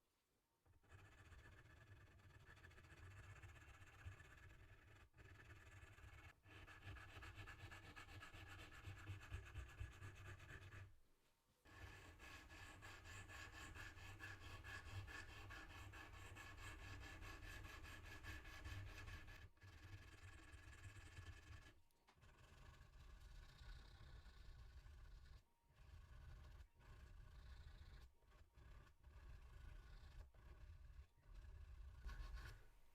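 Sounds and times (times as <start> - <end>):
tool scratching watch case: 26.0 - 32.7.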